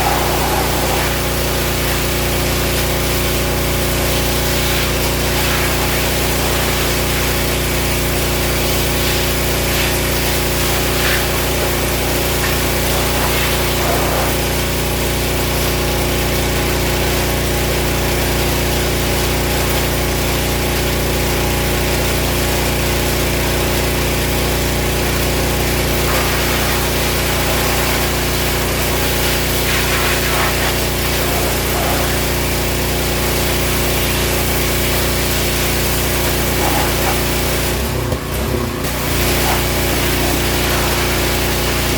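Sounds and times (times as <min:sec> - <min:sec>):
spraying water hiss: 0:00.0 - 0:15.7, 0:24.3 - 0:41.9
pressure washer engine pulsing: 0:00.0 - 0:41.9.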